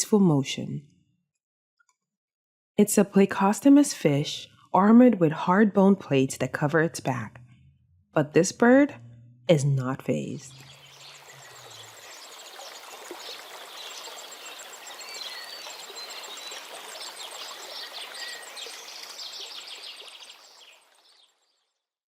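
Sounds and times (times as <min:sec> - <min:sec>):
small birds chirping: 0:10.3 - 0:21.5
running water rushing: 0:10.5 - 0:21.4.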